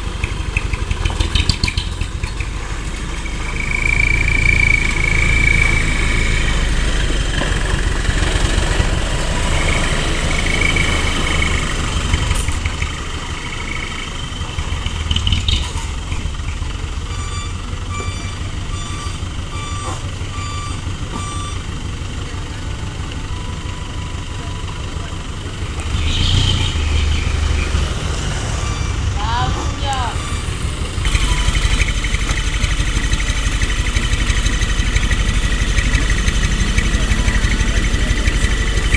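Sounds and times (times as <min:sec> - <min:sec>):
truck diesel engine running: 0:00.0 - 0:38.9
reversing alarm beeping: 0:02.5 - 0:07.3, 0:08.1 - 0:14.9, 0:16.9 - 0:25.3, 0:26.3 - 0:38.9.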